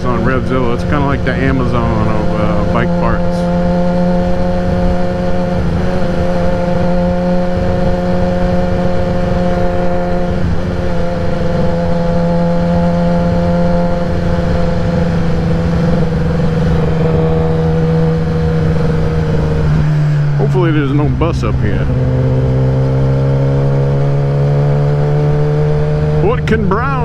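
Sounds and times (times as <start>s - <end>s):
motorcycle engine cruising: 0.0s - 27.0s.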